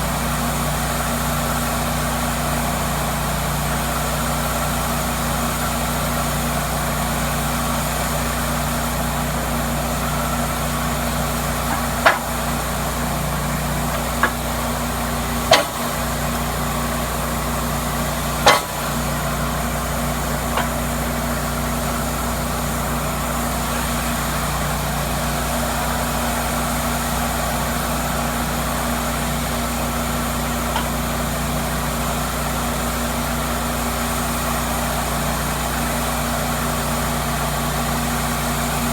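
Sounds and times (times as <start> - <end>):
sawmill humming: 0.0 - 38.9
short sharp knocks: 11.7 - 12.6, 15.4 - 16.4, 18.4 - 19.0.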